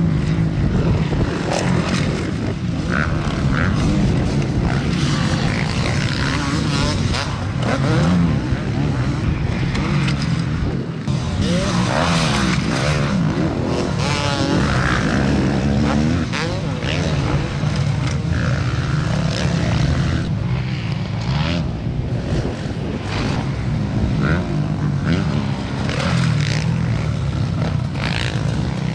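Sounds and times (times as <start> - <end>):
motocross bikes revving: 0.0 - 28.9.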